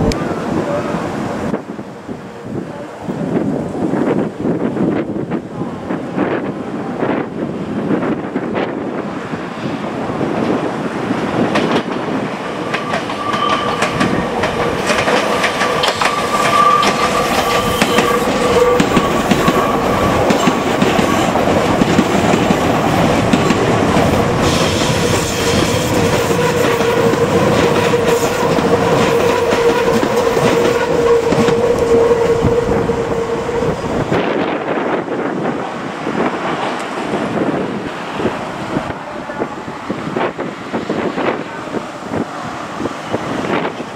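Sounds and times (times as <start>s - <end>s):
electric train whine: 0.0s - 43.9s
train wheels clattering: 11.3s - 33.3s.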